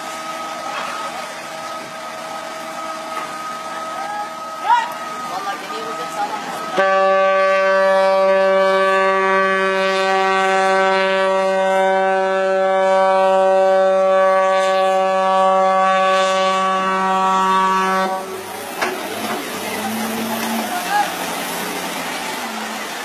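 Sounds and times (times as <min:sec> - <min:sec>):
ship's horn blast: 0:00.0 - 0:22.8.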